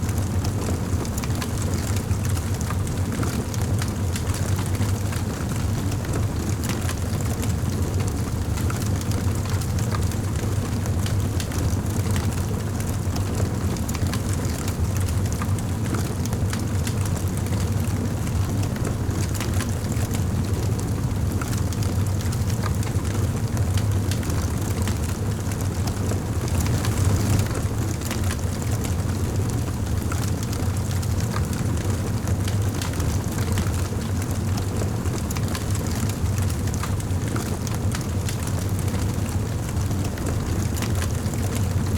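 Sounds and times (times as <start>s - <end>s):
low rumble of flames: 0.0s - 41.9s
wood fire crackling and popping: 18.8s - 39.8s.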